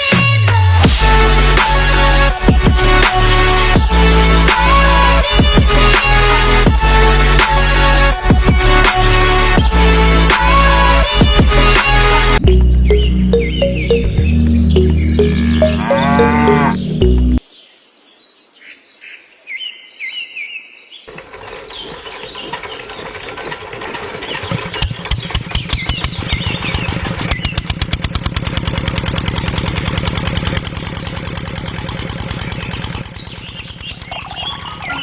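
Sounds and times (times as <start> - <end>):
birds chirping: 12.4 - 17.8, 31.8 - 35.0.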